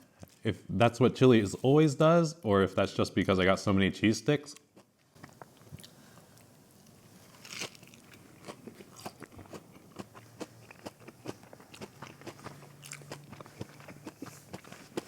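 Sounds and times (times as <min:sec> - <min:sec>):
crunchy chewing: 0:04.8 - 0:15.0.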